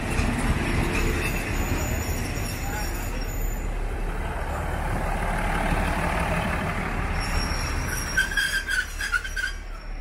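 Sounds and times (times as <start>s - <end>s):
railcar rumbling past: 0.0s - 10.0s
wheel squeals: 7.1s - 10.0s.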